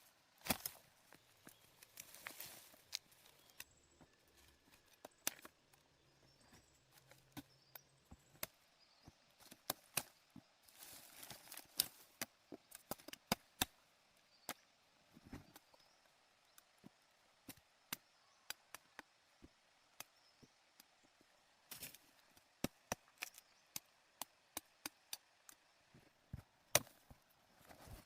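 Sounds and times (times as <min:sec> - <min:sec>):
rustling: 0:01.5 - 0:03.6
wood chopping knocks and cracks: 0:26.3 - 0:27.2.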